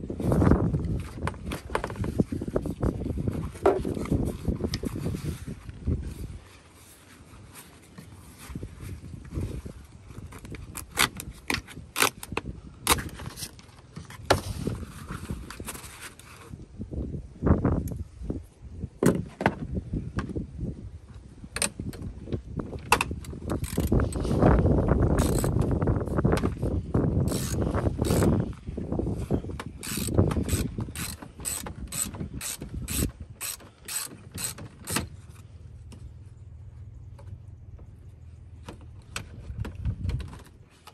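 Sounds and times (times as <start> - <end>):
ratchet wrench clicking: 23.5 - 24.2, 25.2 - 25.6, 27.3 - 28.4, 29.8 - 35.1.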